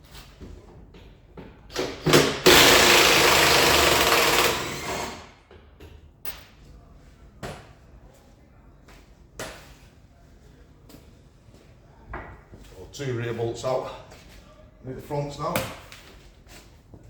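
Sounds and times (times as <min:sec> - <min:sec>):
power wrench running: 0:02.1 - 0:05.4.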